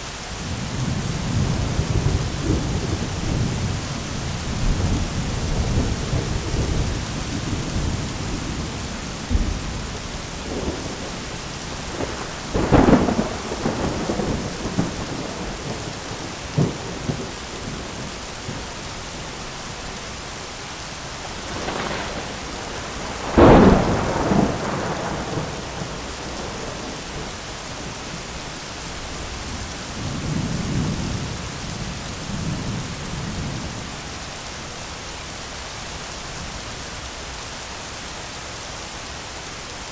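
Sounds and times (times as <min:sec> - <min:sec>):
heavy rain: 0:00.0 - 0:39.9
rolling thunder rumbles: 0:00.4 - 0:19.6, 0:21.1 - 0:28.4, 0:29.0 - 0:34.0
sharp thunder claps: 0:09.3 - 0:18.6, 0:21.3 - 0:27.3.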